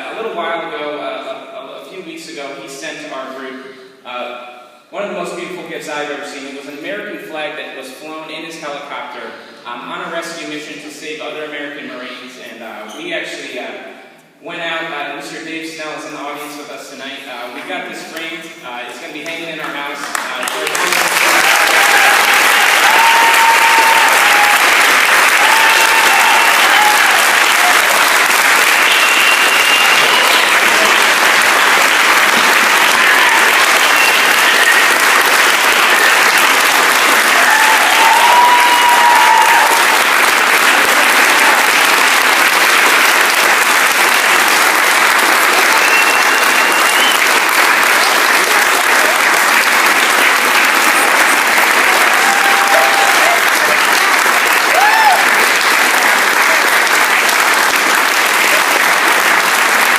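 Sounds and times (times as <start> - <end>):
audience applauding: 19.2 - 59.9.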